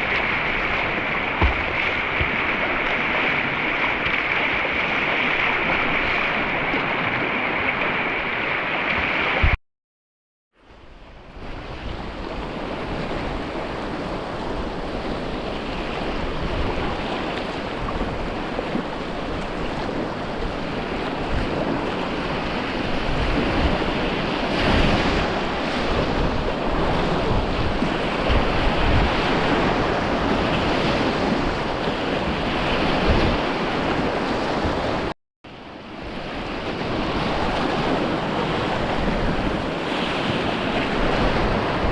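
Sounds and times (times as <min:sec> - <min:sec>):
rushing river water: 0:00.0 - 0:09.6, 0:11.1 - 0:41.9
wind buffeting microphone: 0:11.0 - 0:41.9.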